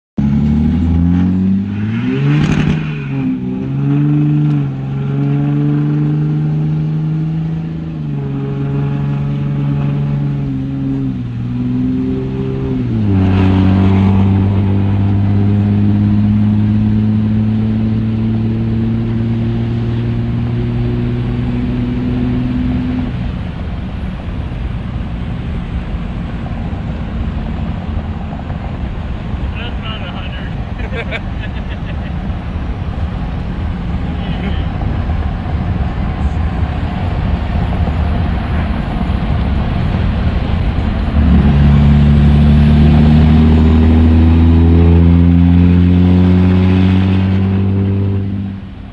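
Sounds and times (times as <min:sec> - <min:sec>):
vehicle engine revving: 0:00.0 - 0:48.9.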